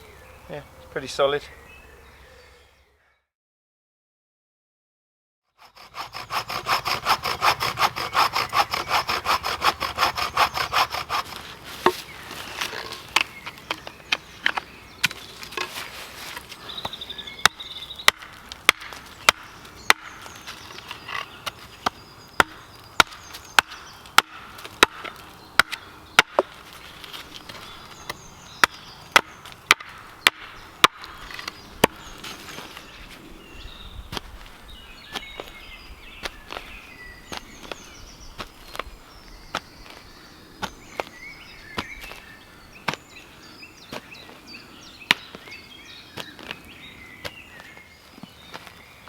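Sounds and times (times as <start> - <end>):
wood being chopped: 6.4 - 32.2, 45.1 - 45.4.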